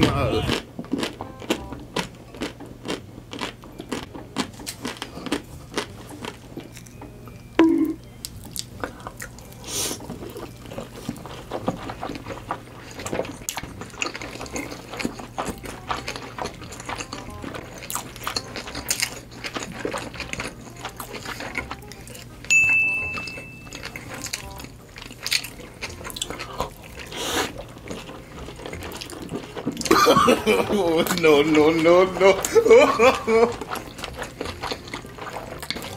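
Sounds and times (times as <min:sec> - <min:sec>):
wet chewing and mouth smacking: 0:00.0 - 0:07.0, 0:08.2 - 0:35.9
short high beep: 0:22.5 - 0:23.7.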